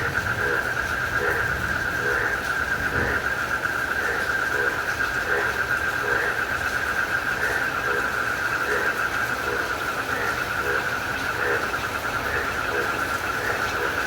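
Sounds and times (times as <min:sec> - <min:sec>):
crickets trilling: 0:00.0 - 0:14.0
frog calling: 0:00.0 - 0:14.0
rain hiss: 0:00.0 - 0:14.0.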